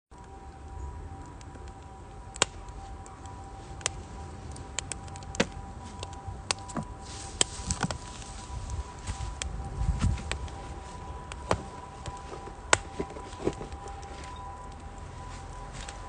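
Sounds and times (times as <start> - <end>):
firewood crackling and popping: 0.1 - 16.0.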